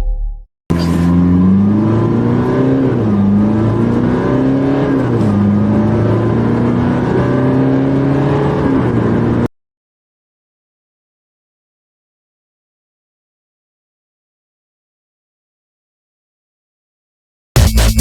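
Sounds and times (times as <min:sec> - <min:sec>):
car engine accelerating hard: 0:00.7 - 0:09.5.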